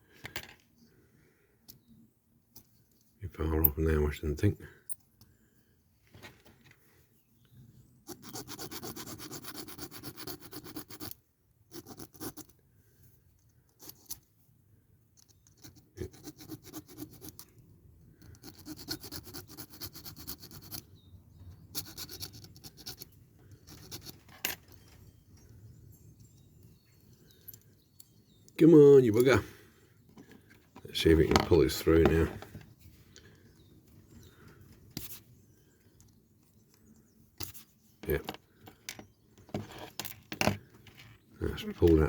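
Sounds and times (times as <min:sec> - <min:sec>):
metal being filed: 0:08.1 - 0:12.4, 0:18.2 - 0:20.9.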